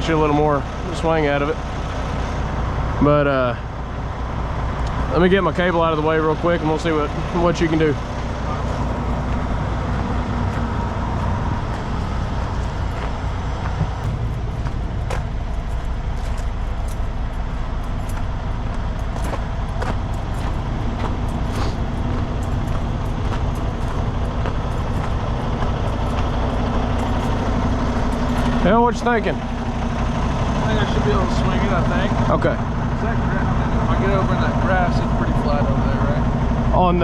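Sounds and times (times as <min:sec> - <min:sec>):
truck diesel engine running: 0:00.0 - 0:37.0.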